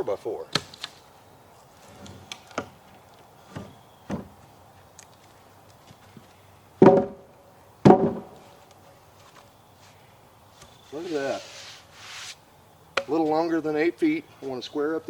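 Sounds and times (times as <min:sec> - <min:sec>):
hollow wooden thumps: 0:03.5 - 0:04.4, 0:06.8 - 0:08.4
wooden knocks: 0:06.8 - 0:07.2, 0:07.8 - 0:08.4.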